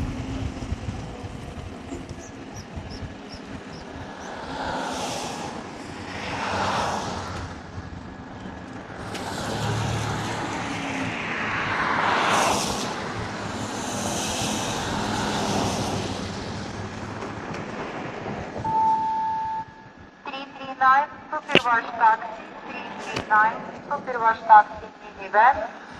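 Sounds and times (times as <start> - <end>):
wind rush: 0.0 - 18.9
passing vehicles: 0.0 - 20.2.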